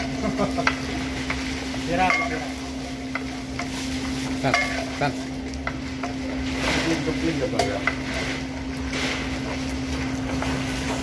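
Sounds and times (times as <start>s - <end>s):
crackers sizzling in hot oil: 0.0s - 11.0s
metal scoop scraping a wok: 1.2s - 9.6s.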